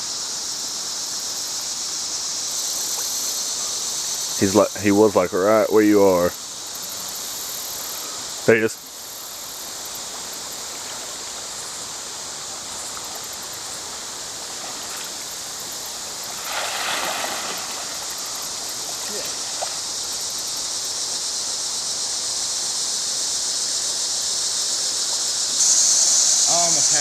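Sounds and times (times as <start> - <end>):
water running over rocks: 0.0 - 27.0
water splashing: 12.9 - 20.5.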